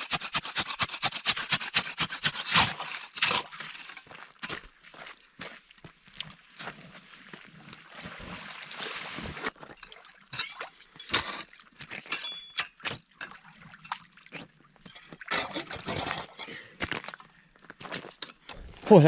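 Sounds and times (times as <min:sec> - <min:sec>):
water sloshing and splashing: 0:06.5 - 0:17.4.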